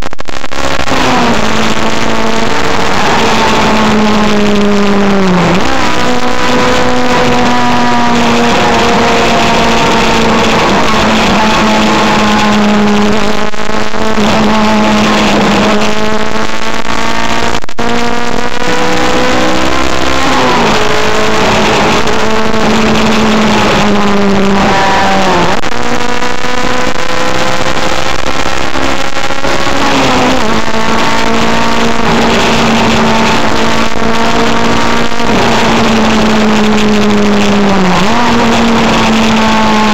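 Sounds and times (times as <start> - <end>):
car engine at high revs: 0.0 - 39.9.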